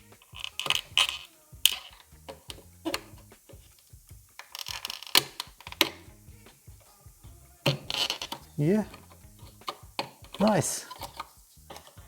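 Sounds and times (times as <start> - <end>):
hard plastic clicks and taps: 4.4 - 6.0, 7.7 - 12.0.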